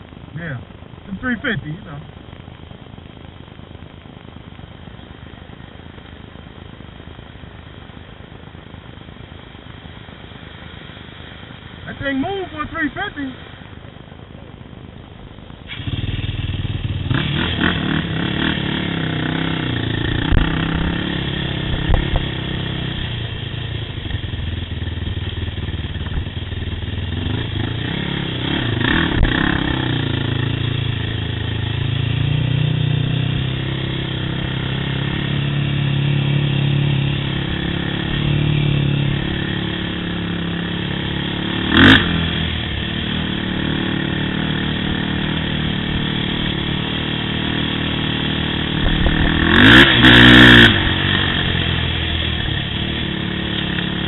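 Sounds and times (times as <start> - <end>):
quad engine under throttle: 15.6 - 54.0.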